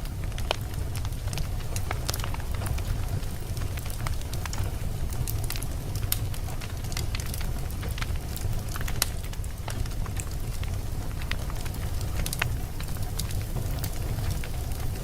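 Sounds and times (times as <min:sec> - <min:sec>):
fire crackling and popping: 0:00.0 - 0:15.0
fire flames rumbling: 0:00.0 - 0:15.0.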